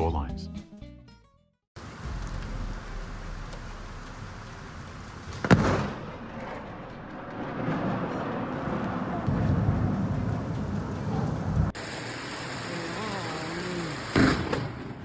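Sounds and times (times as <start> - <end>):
thunder crack: 1.8 - 11.8
rain rushing: 1.8 - 14.5.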